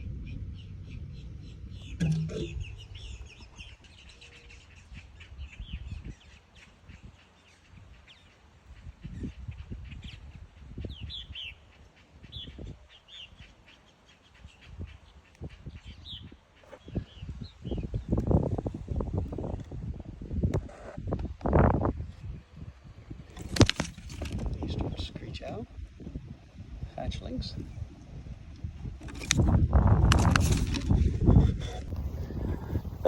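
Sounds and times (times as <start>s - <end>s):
birds chirping: 0.0s - 19.6s, 29.0s - 33.0s.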